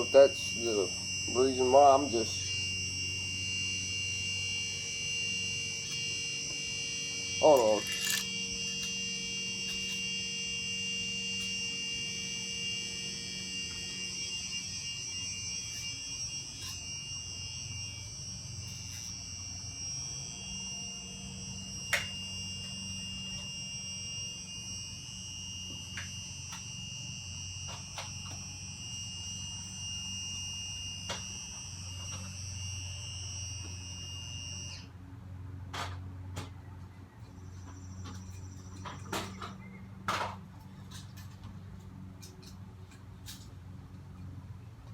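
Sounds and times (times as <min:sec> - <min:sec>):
high-pitched electronic alarm tone: 0:00.0 - 0:34.9.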